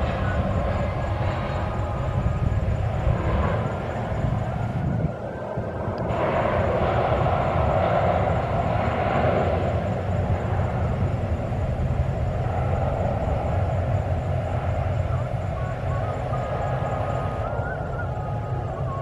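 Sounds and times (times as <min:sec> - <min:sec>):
jet airliner engines running: 0:00.0 - 0:19.0.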